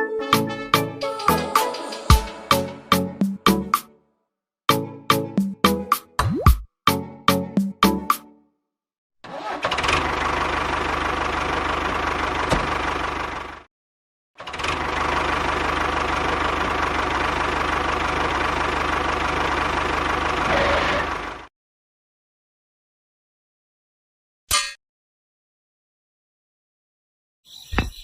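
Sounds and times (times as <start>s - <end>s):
small engine running: 9.3s - 13.7s, 14.4s - 21.5s.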